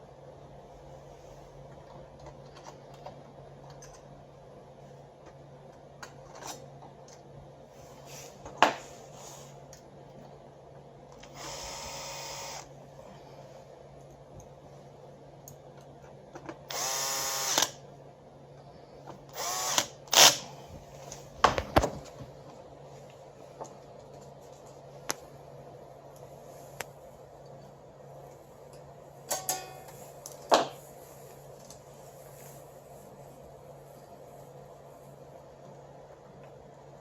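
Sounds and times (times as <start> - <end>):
electric screwdriver whining: 11.2 - 12.7, 16.7 - 17.8, 19.3 - 20.4.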